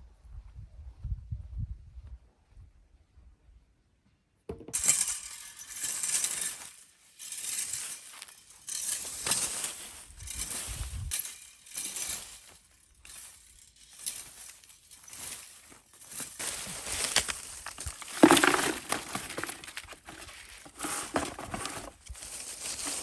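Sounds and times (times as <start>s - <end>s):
crunching and rustling: 4.8s - 23.0s.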